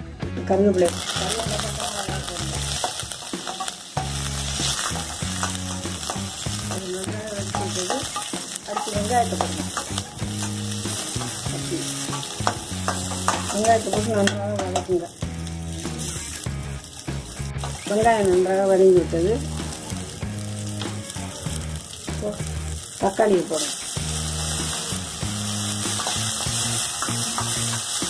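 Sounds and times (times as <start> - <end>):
vegetables sizzling in hot oil: 0.6 - 28.0
metal spoon scraping pan: 2.4 - 14.9, 25.7 - 28.0.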